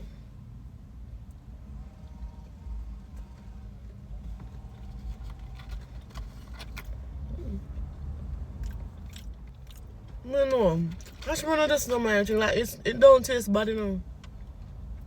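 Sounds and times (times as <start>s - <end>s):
person chewing crunchy food: 8.5s - 10.2s.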